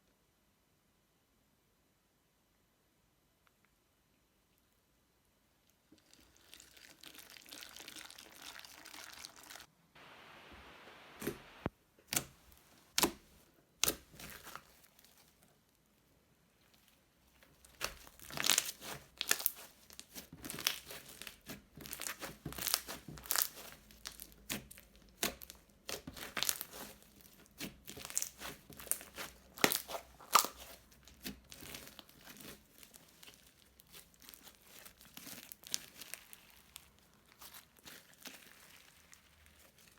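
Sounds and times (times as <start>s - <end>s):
soft hiss: 9.7s - 11.8s
slime crackling and popping: 13.8s - 15.4s, 16.7s - 39.9s.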